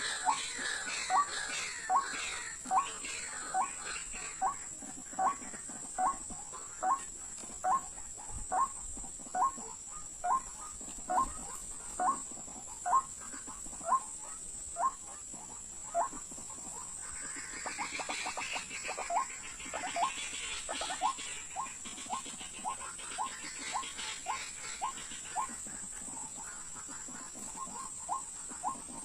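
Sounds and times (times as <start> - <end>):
waterhen calling: 0.0 - 29.0.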